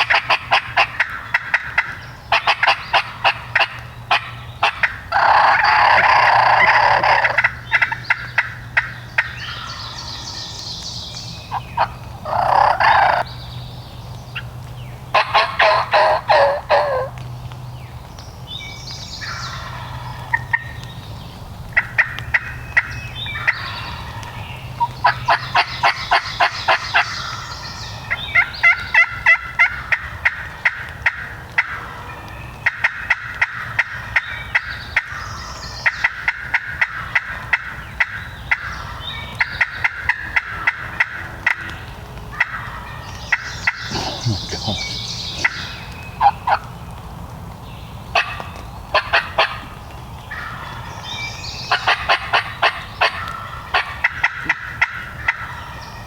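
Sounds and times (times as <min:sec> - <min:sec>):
turkey gobbling: 0:00.0 - 0:09.9, 0:11.5 - 0:13.2, 0:15.2 - 0:17.1, 0:24.8 - 0:27.1, 0:42.3 - 0:46.7, 0:48.2 - 0:49.6, 0:51.7 - 0:55.7.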